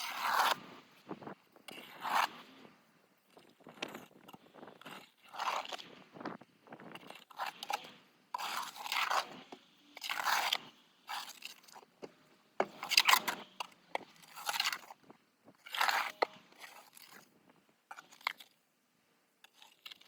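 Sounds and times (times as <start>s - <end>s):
snow shovel scraping snow: 0.0s - 2.7s.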